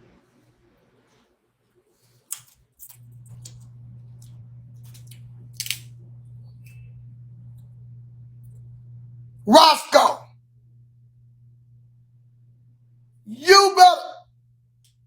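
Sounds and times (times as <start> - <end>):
steady low hum: 2.9 - 15.0
crab shells cracking: 4.9 - 5.9.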